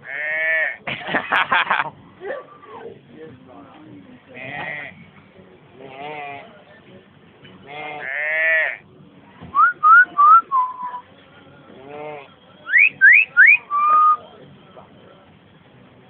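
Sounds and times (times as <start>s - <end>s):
bird calling and whistling: 12.7s - 14.2s.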